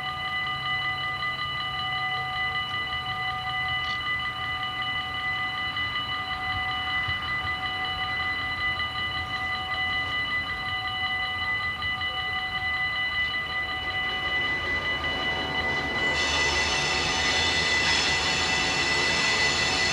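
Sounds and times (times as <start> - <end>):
level crossing bells ringing: 8.5 - 19.9.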